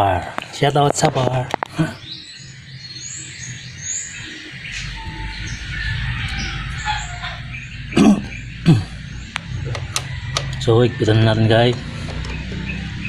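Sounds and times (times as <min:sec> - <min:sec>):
small birds chirping: 0:00.0 - 0:13.0
low rumble: 0:04.0 - 0:13.0.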